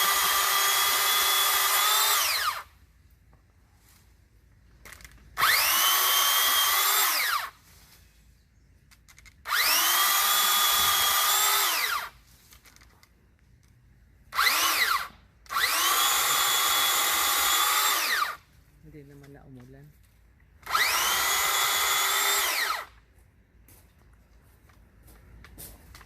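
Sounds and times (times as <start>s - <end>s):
pole saw motor whining: 0.0s - 2.7s, 5.4s - 7.6s, 9.4s - 12.2s, 14.3s - 18.4s, 20.6s - 23.0s.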